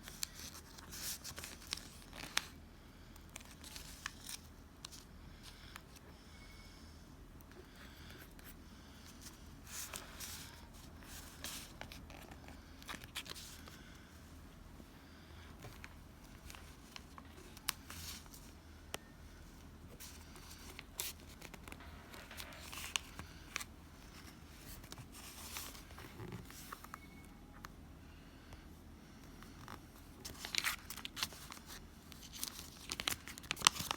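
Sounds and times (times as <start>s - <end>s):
paper rustling: 20.0s - 27.0s, 29.6s - 33.9s.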